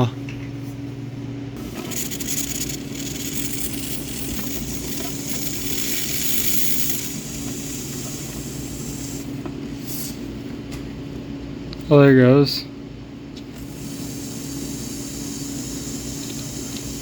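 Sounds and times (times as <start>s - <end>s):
steady low hum: 0.0s - 17.0s
pressurized fluid hissing: 1.6s - 10.2s, 13.6s - 17.0s.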